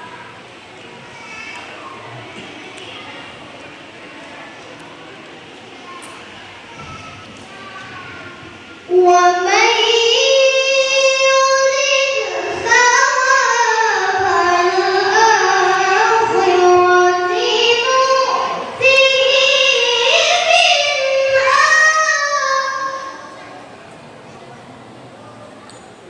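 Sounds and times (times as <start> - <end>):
boy reciting melodically: 5.8 - 23.7.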